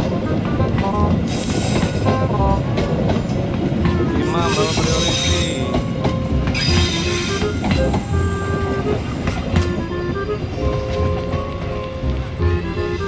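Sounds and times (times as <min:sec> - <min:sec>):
background music: 0:00.0 - 0:13.0
train wheels rumbling on rails: 0:00.0 - 0:13.0
high wheel squeal: 0:04.0 - 0:09.4.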